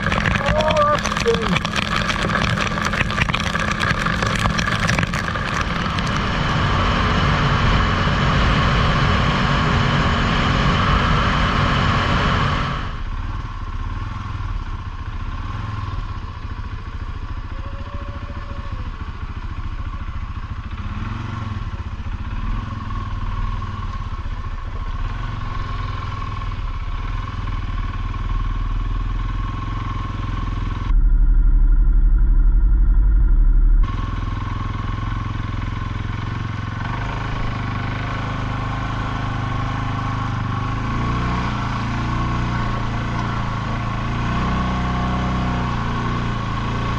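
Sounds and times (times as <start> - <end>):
loud low rumble: 30.9 - 33.9
atv engine running: 33.9 - 46.9.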